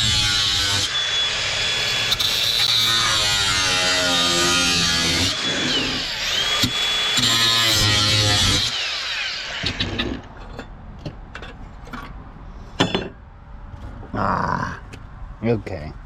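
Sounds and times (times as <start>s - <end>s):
power tool motor running: 0.0s - 10.2s.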